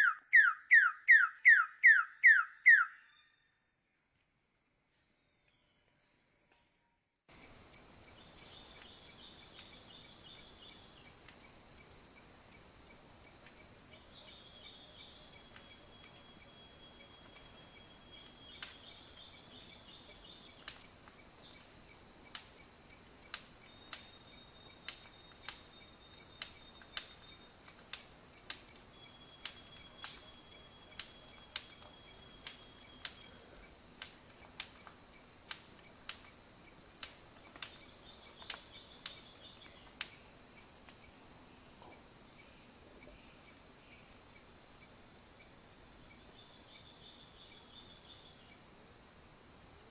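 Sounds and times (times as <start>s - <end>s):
cricket trilling: 7.3s - 49.2s.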